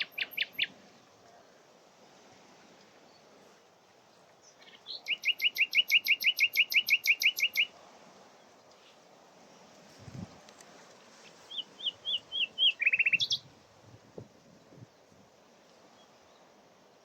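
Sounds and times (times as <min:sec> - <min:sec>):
nightingale singing: 0:00.0 - 0:00.7, 0:04.5 - 0:07.7, 0:11.3 - 0:13.5.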